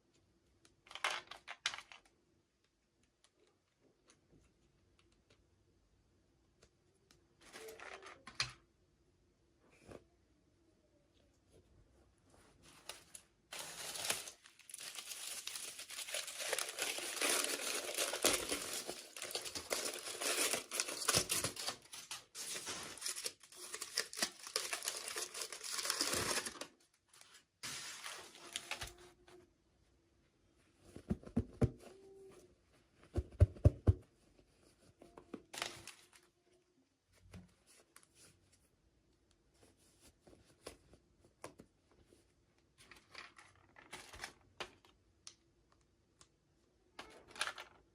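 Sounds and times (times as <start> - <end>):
packaging tearing and crinkling: 13.5 - 26.7.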